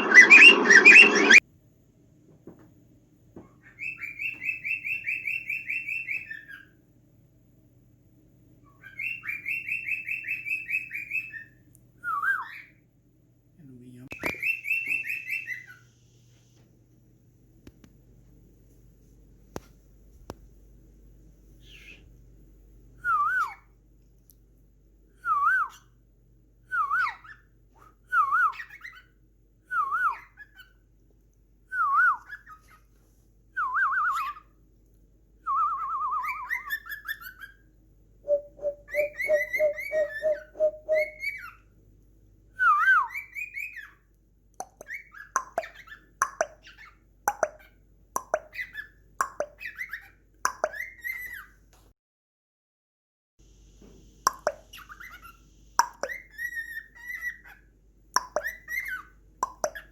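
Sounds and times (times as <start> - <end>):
cockatiel whistling: 0.0 - 1.4, 8.8 - 12.7, 14.2 - 15.8, 23.0 - 23.6, 26.7 - 27.4, 29.7 - 30.7, 33.6 - 34.4, 35.5 - 37.4, 38.3 - 41.6
bird chirps and clicks: 14.1 - 15.3, 38.3 - 41.1, 44.6 - 51.4, 54.3 - 57.2, 58.1 - 59.9.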